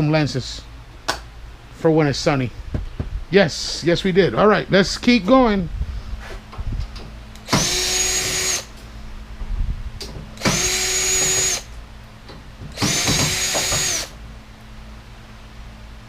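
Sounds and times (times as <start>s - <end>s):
power drill driving screws: 7.4s - 8.7s, 10.4s - 11.7s, 12.7s - 14.2s.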